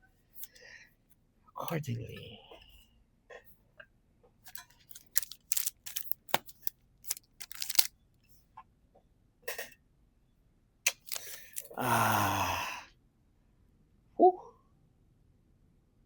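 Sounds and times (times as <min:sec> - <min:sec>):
trading cards rustling and snapping: 0:04.5 - 0:07.9, 0:10.9 - 0:11.8.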